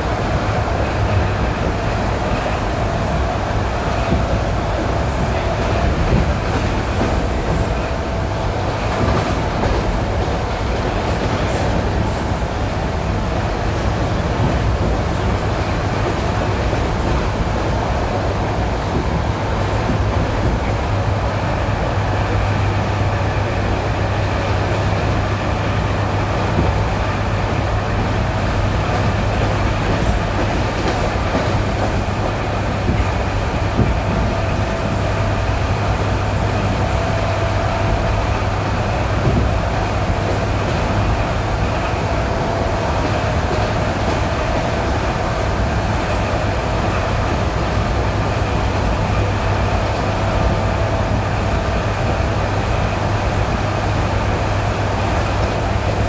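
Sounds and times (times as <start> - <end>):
train rumble and wheel noise: 0.0 - 56.0
wheels knocking on rail joints: 26.4 - 56.0.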